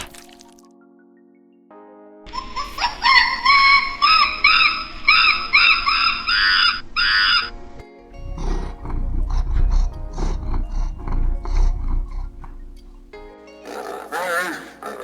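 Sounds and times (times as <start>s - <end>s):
high arching calls: 2.4s - 7.6s, 8.2s - 15.0s
big cat growling and roaring: 8.2s - 15.0s.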